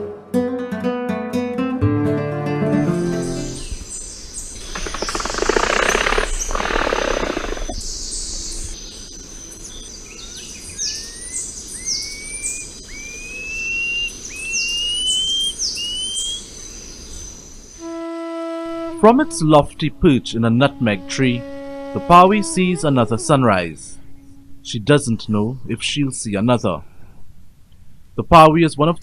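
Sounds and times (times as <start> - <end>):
bird whistling rising notes: 3.0 - 9.1, 9.7 - 16.5, 17.8 - 24.9
high insect whine: 3.5 - 25.0
loud harsh rasping noise: 4.6 - 7.8, 17.8 - 25.4.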